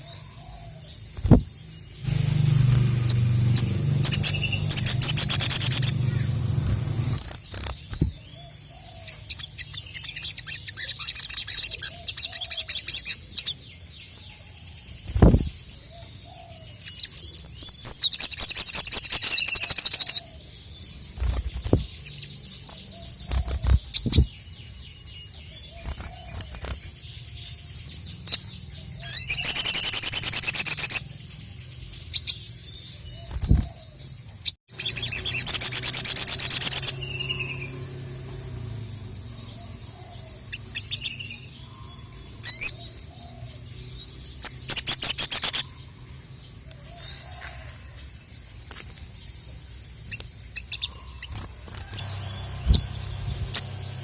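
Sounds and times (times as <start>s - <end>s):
bird chattering song: 0.0s - 47.4s, 48.4s - 54.0s
low thumps: 1.2s - 7.2s, 7.9s - 8.2s.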